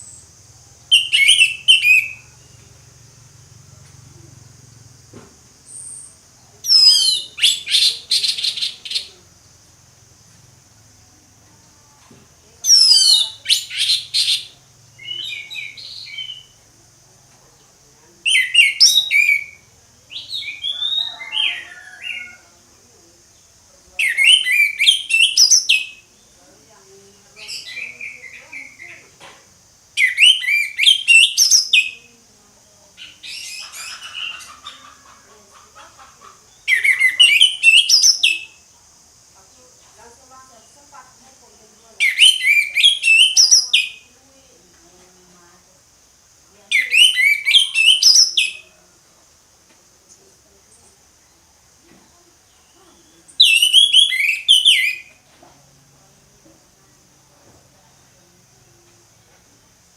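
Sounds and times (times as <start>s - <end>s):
thrush singing whistled song: 0.0s - 2.9s, 5.6s - 9.2s, 12.7s - 16.6s, 18.2s - 22.4s, 24.0s - 26.2s, 30.0s - 32.1s, 36.5s - 38.6s, 42.0s - 44.1s, 46.7s - 48.8s, 52.5s - 55.2s
faint high hiss: 0.0s - 59.9s.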